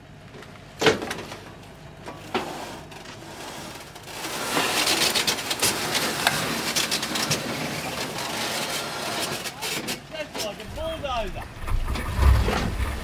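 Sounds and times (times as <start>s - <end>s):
gravel crunching: 2.8s - 13.0s.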